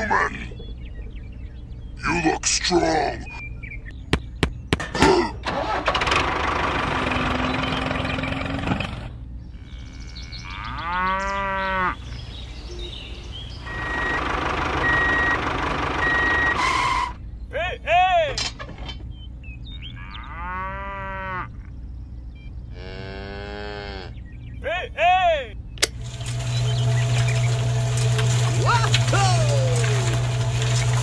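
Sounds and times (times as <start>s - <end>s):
cow mooing: 9.6s - 12.2s, 19.8s - 21.6s, 22.7s - 24.2s
steady noisy running sound: 12.2s - 17.2s, 25.8s - 31.0s
vehicle reversing beep: 12.7s - 17.1s
sharp clicks: 25.8s - 26.0s.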